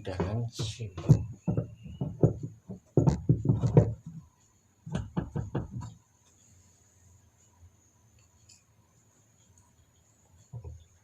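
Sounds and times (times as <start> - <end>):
washing machine parts knocking: 0.0 - 4.3, 4.9 - 6.0.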